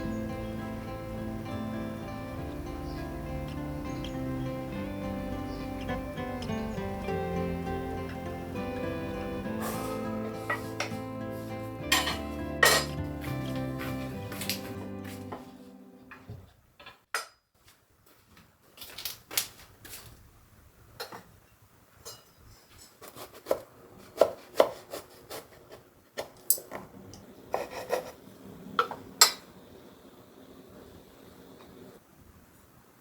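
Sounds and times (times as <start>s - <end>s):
dishes and utensils clinking: 2.4s - 15.2s, 22.0s - 23.0s.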